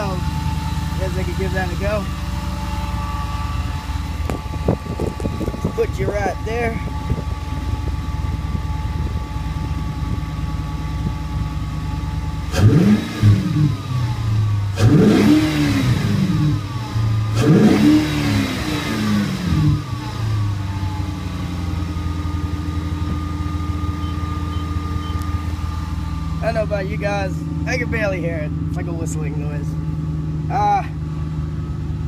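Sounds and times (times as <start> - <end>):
car engine idling and revving: 0.0 - 32.0
faint intake whistle: 1.5 - 5.0.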